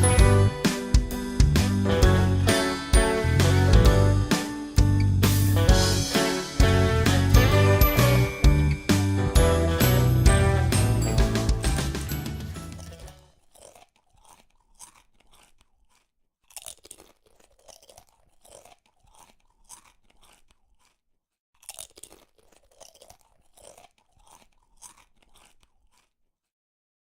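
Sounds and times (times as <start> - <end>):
faint crunching: 12.7 - 26.5.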